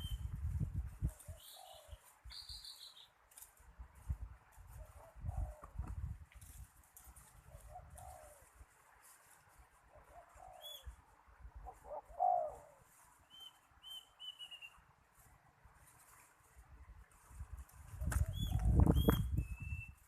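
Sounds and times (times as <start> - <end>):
doves cooing: 1.2 - 2.1, 4.8 - 5.9, 7.5 - 8.6, 9.9 - 11.0, 11.6 - 13.0
small bird chirping: 1.2 - 3.2, 10.1 - 11.0, 13.3 - 14.8, 18.2 - 20.0.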